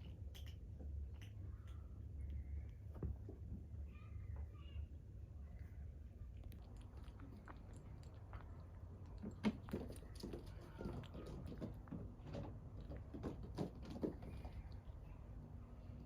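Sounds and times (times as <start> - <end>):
kittens clicking and tapping: 0.0 - 3.6, 6.4 - 14.9.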